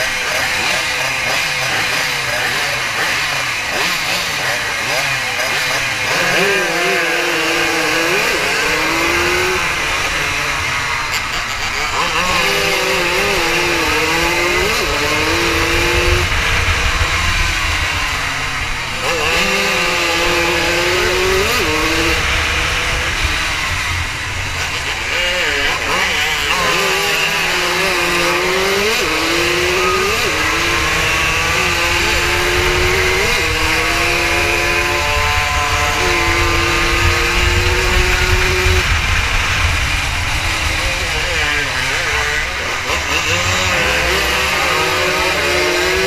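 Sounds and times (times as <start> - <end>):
racing motorcycle engine revving: 0.0 - 46.0
wind rumble on microphone: 11.8 - 26.2, 29.3 - 44.8.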